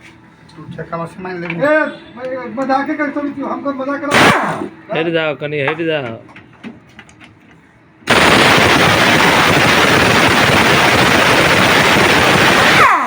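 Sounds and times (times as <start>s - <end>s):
power tool fast rattle: 8.1s - 13.0s.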